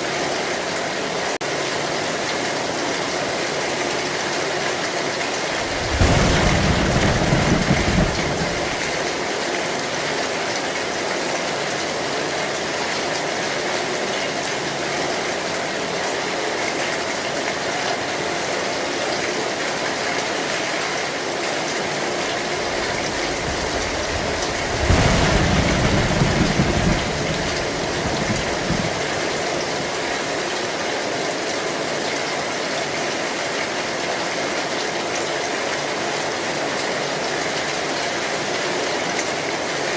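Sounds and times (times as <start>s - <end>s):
heavy rain on metal roof: 0.0s - 39.9s
low thunder rumbles: 5.5s - 9.3s, 22.3s - 30.2s.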